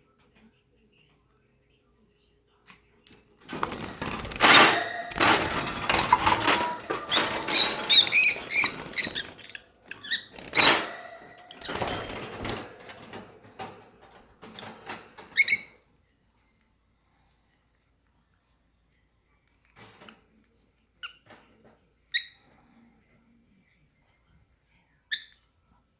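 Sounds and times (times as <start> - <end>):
lovebirds chirping and squeaking: 3.6 - 13.1, 14.4 - 15.8.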